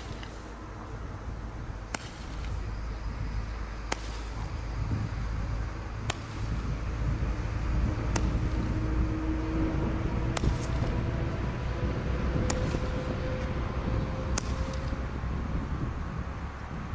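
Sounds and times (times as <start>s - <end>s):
fireworks popping: 0.0s - 0.4s, 1.9s - 2.7s, 3.8s - 5.0s, 6.0s - 6.8s, 8.1s - 8.9s, 10.4s - 11.0s, 14.4s - 15.0s
wind on microphone: 0.0s - 16.9s.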